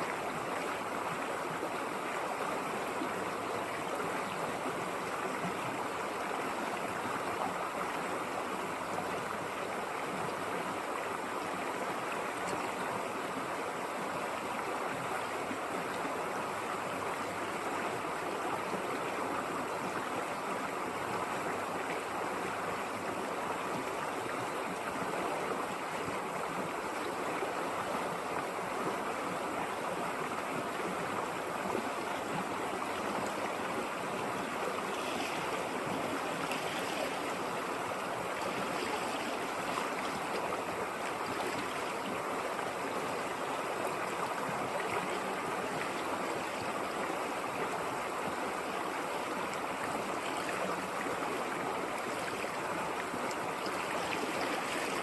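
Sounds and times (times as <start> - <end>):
river water rushing over stream bed: 0.0 - 55.0.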